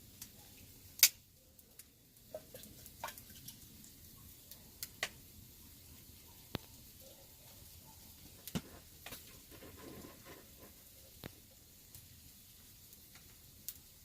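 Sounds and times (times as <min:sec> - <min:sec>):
sharp clicks and pops: 0:01.0 - 0:01.2.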